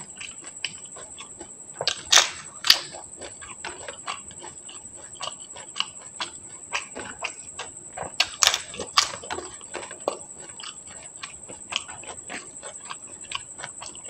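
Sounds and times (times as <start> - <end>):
crunchy chewing: 0.0 - 14.0
loud sharp cracks: 1.9 - 2.9.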